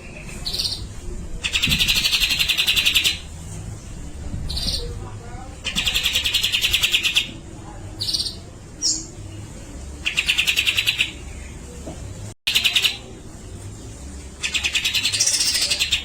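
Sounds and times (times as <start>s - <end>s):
bird rasping chatter: 1.4s - 3.3s, 5.6s - 7.3s.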